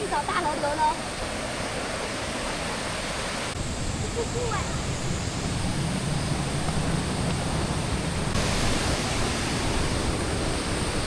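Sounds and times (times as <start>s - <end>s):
waterfall and river roaring: 0.0s - 11.0s.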